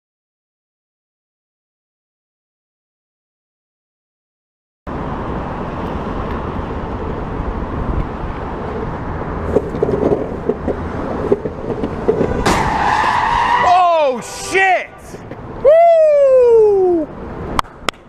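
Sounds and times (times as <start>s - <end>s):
car road and engine noise: 4.9s - 18.0s
tyres squealing: 10.3s - 15.3s.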